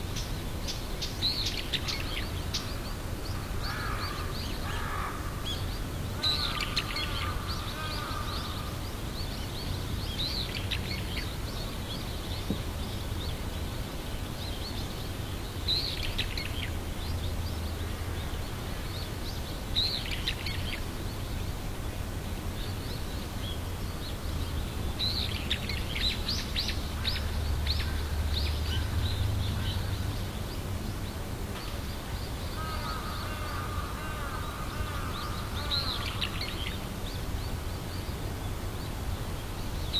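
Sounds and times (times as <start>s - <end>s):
birds chirping: 22.6s - 39.9s.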